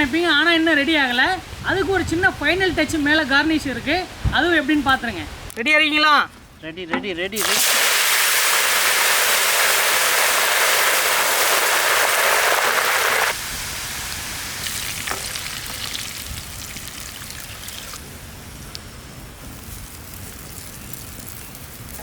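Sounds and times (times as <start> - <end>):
leaves sizzling in hot oil: 7.4 - 22.0.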